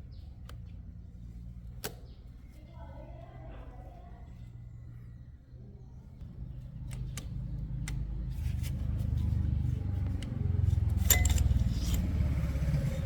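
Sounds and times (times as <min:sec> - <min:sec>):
motorcycle engine running: 0:06.2 - 0:13.0
metallic clinks and taps: 0:10.8 - 0:12.2.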